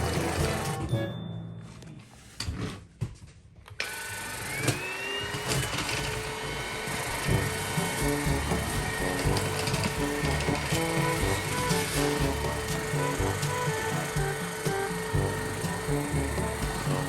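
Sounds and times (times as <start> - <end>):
vacuum cleaner motor whine: 3.8 - 17.0.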